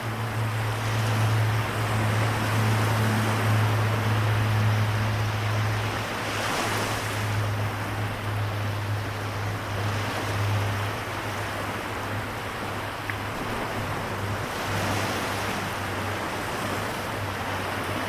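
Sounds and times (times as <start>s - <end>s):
waves washing on shore: 0.0s - 18.0s.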